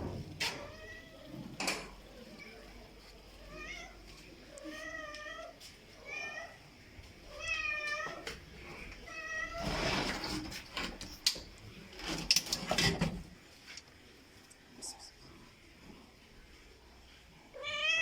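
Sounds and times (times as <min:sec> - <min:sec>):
cat meowing: 0:07.3 - 0:08.2, 0:17.6 - 0:18.0.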